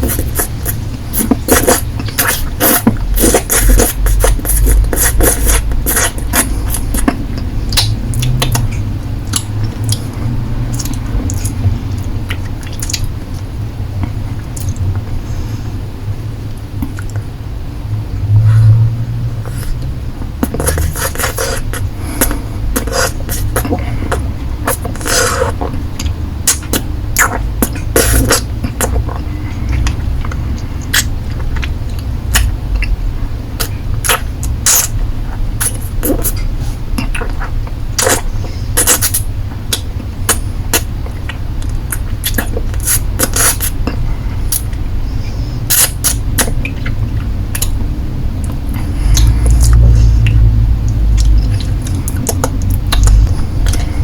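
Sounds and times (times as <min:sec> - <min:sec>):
lollipop licking mouth sounds: 0:00.0 - 0:11.6, 0:20.4 - 0:25.7, 0:45.7 - 0:47.7
steady low hum: 0:00.0 - 0:54.0.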